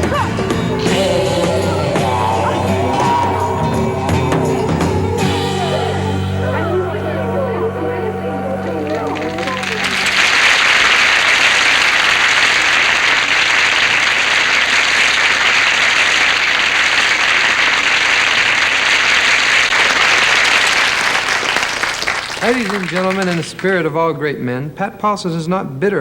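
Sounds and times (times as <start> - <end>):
audience applauding: 7.1 - 23.8.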